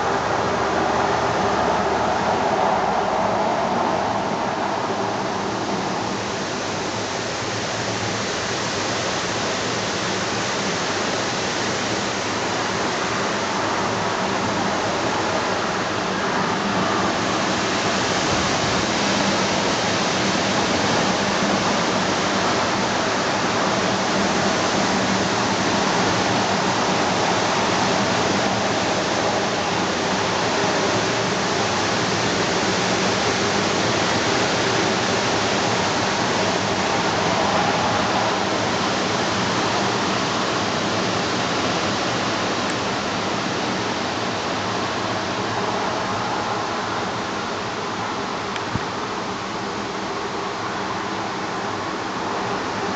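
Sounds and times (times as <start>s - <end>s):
strong wind rushing: 0.0s - 8.1s, 13.0s - 41.5s.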